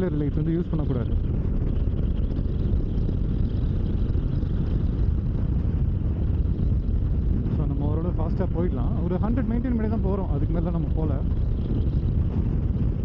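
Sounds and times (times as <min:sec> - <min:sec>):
motorcycle cruising: 0:00.0 - 0:13.0.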